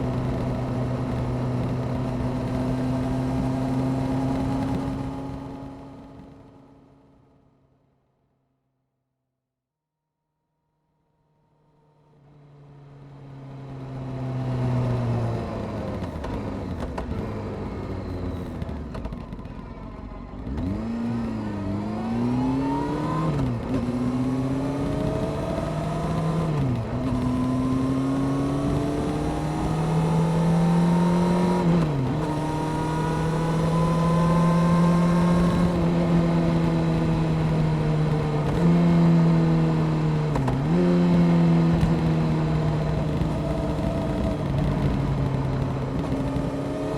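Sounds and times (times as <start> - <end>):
motorcycle engine accelerating: 0.0 - 7.2, 11.7 - 46.9.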